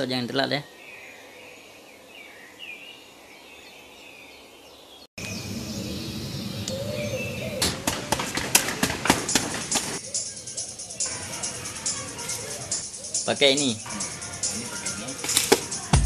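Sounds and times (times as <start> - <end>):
birds chirping: 0.0 - 16.0
sharp knocks: 7.6 - 10.0.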